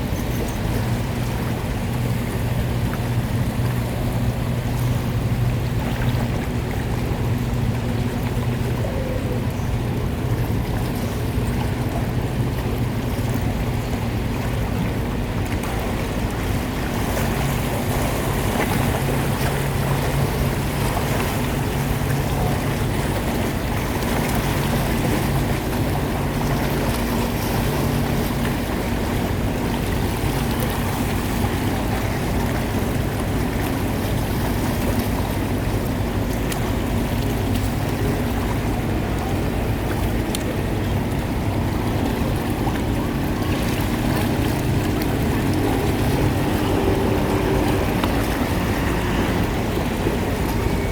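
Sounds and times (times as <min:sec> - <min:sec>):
boat engine running: 0:00.0 - 0:50.9
water washing: 0:00.0 - 0:50.9.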